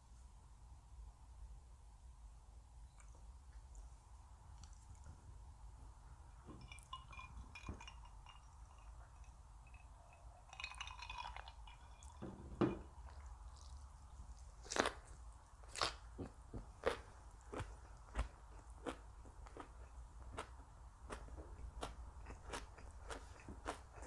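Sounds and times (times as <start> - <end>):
chewing: 3.0 - 5.2, 13.0 - 24.0
tableware clinking: 6.4 - 13.0
crunchy vegetable bites: 14.4 - 24.0.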